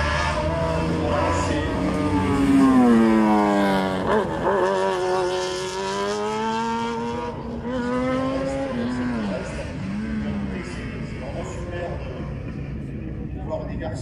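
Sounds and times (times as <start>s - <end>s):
race car engine accelerating: 0.0s - 13.2s.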